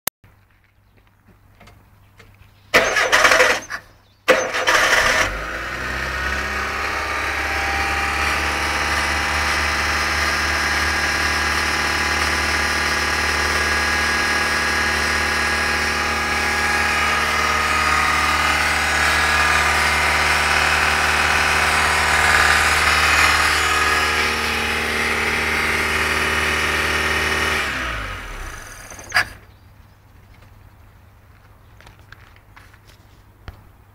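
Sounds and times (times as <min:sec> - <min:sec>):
engine winding down: 0:02.8 - 0:29.4
starter motor cranking: 0:02.8 - 0:29.4
car engine running: 0:04.5 - 0:29.4.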